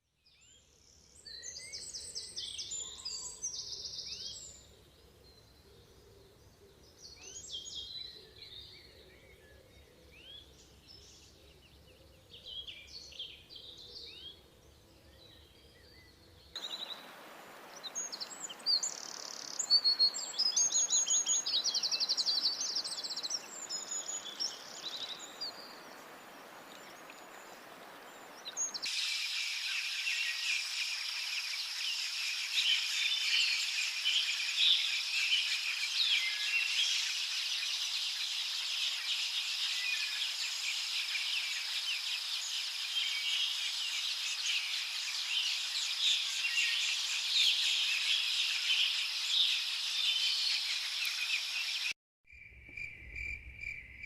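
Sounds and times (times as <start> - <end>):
high-pitched hiss: 16.6 - 51.9
steady hiss: 16.6 - 51.9.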